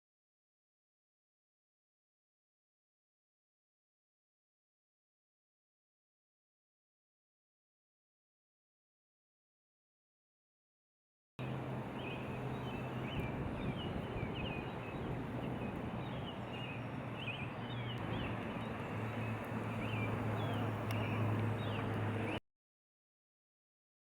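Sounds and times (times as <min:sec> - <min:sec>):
outdoor noise with low hum: 0:11.4 - 0:22.4
small birds chirping: 0:11.4 - 0:22.4.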